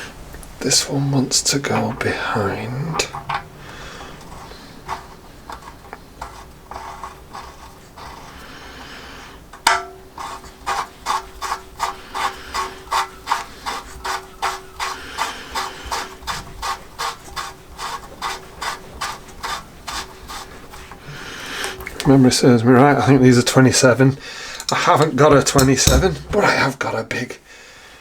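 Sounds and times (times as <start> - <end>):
sharp metallic knock: 9.6 - 10.0
hand tool clicking: 24.5 - 26.3.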